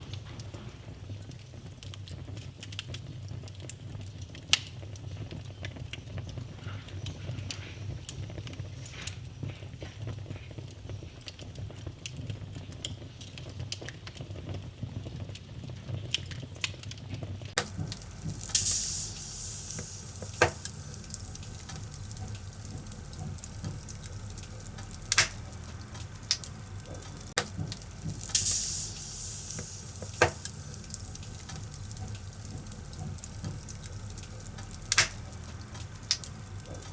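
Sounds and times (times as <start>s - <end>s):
fire hissing: 17.6s - 36.9s
fireplace fire crackling: 17.6s - 36.9s.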